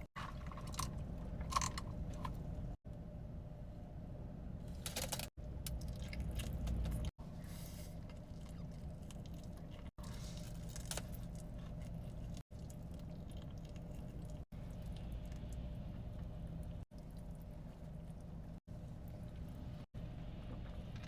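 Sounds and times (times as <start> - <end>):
low steady hum: 0.0 - 21.0
chewing and wet squishing: 5.6 - 7.1, 8.0 - 19.8.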